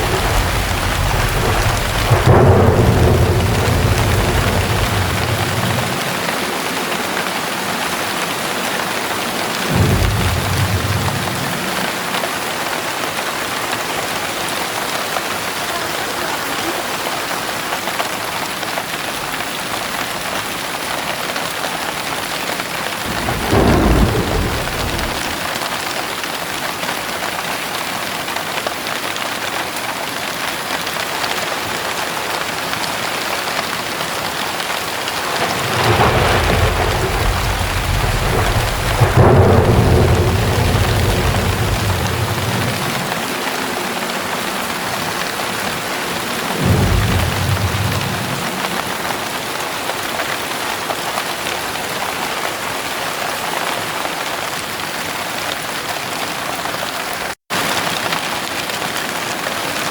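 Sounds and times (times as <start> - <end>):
thunder rumbling: 0.0 - 15.6, 22.1 - 25.8, 32.5 - 50.2
heavy rain: 0.0 - 59.9.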